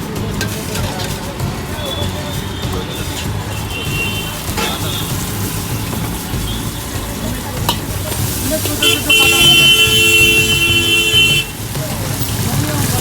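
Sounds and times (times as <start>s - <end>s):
street traffic: 0.0s - 13.0s
vehicle horn blast: 1.8s - 7.0s, 8.7s - 11.6s.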